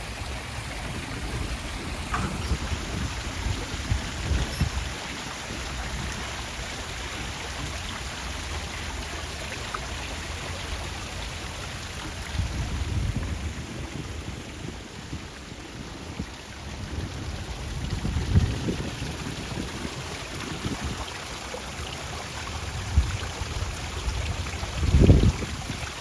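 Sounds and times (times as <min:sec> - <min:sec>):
low rumbling: 0:00.0 - 0:05.0
running water rushing: 0:00.0 - 0:26.0.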